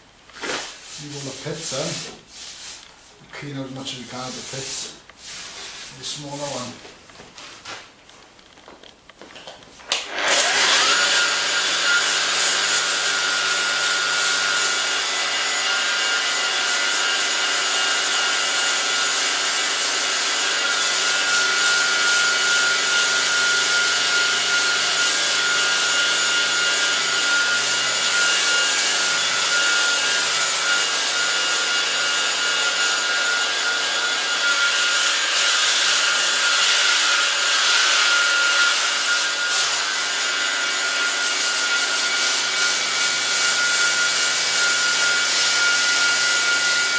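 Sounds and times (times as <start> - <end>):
sanding disc power tool whine: 10.1 - 46.9.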